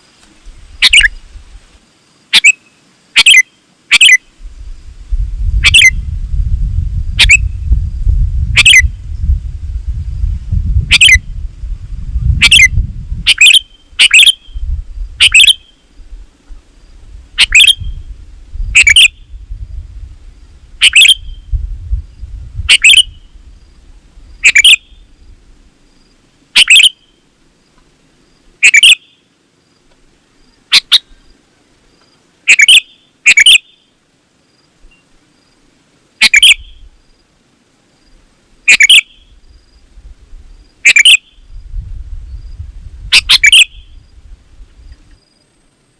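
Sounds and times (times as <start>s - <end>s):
bulbul calling: 0.8s - 1.2s, 2.3s - 4.3s, 5.6s - 6.0s, 7.2s - 7.6s, 8.5s - 8.9s, 10.9s - 11.2s, 12.4s - 14.6s, 15.2s - 15.8s, 17.4s - 18.0s, 18.7s - 19.4s, 20.8s - 21.5s, 22.7s - 23.3s, 24.4s - 25.1s, 26.5s - 27.1s, 28.6s - 29.2s, 30.7s - 31.3s, 32.5s - 33.8s, 36.2s - 36.9s, 38.7s - 39.4s, 40.8s - 41.4s, 43.1s - 44.0s
low rumble: 4.5s - 13.3s.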